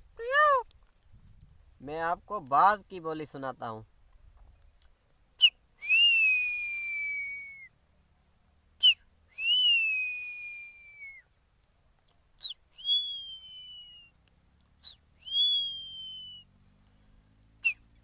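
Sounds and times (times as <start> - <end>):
man whistling hawk call: 5.4 - 7.8, 8.8 - 11.3, 12.4 - 14.2, 14.8 - 16.6, 17.6 - 18.0.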